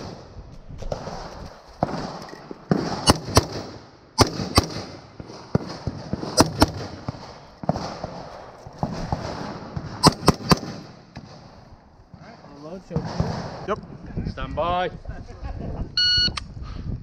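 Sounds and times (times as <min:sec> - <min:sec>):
gunshots in quick pairs: 0:00.0 - 0:00.3, 0:00.9 - 0:11.5, 0:12.9 - 0:13.7.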